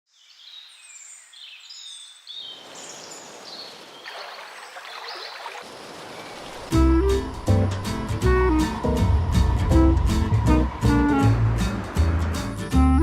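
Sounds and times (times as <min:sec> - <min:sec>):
birds chirping: 0:00.2 - 0:13.0
rushing hiss of flowing water: 0:02.5 - 0:12.7
music: 0:06.7 - 0:13.0.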